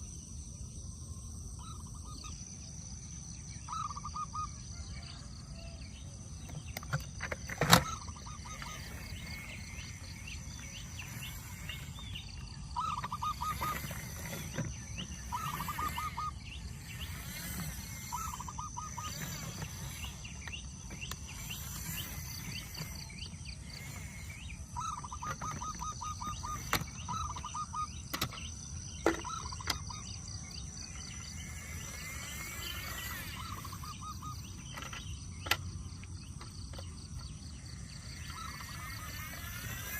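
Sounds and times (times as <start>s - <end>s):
bird chattering calls: 3.7s - 4.9s, 7.6s - 35.6s, 36.5s - 39.9s
high thin buzz: 7.9s - 25.2s.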